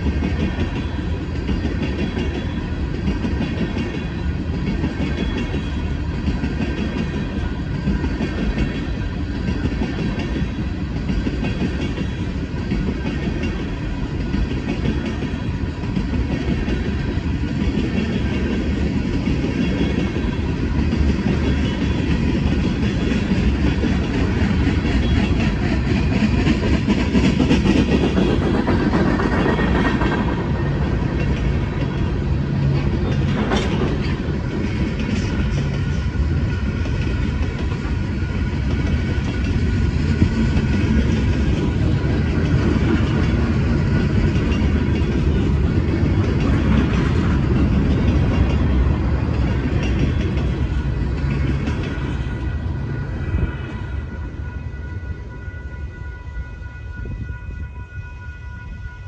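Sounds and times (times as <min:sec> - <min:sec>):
wheels clickety-clack over joints: 0:00.0 - 0:52.5
freight train wheels rumbling on rail: 0:00.0 - 0:59.0.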